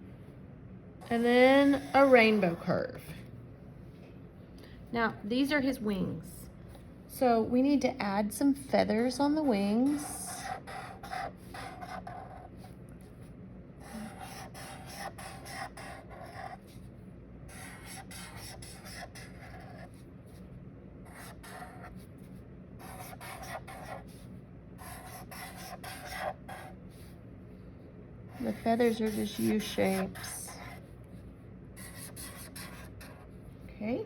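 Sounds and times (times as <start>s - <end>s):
faint low hum: 0.0s - 34.0s
drawing tool scratching paper: 1.1s - 2.6s, 9.5s - 12.8s, 13.8s - 16.9s, 17.5s - 20.4s, 21.1s - 22.0s, 22.8s - 24.2s, 24.8s - 27.1s, 28.4s - 30.9s, 31.8s - 33.3s.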